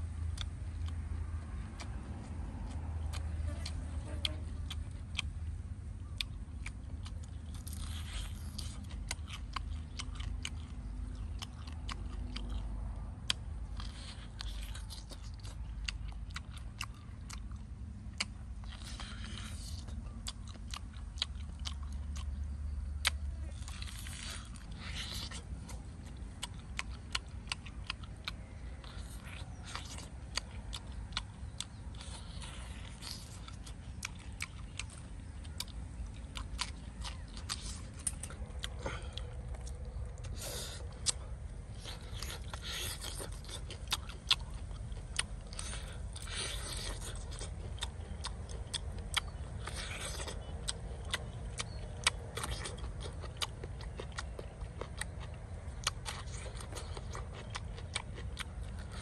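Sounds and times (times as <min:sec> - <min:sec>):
steady low rumble: 0:00.0 - 0:59.0
lip smacks and chewing: 0:00.2 - 0:59.0
crunchy bites: 0:00.3 - 0:59.0.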